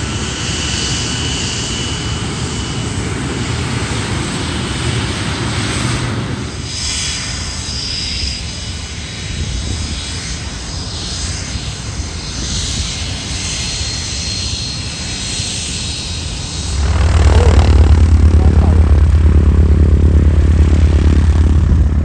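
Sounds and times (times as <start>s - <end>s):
aircraft flying past: 16.2s - 22.0s.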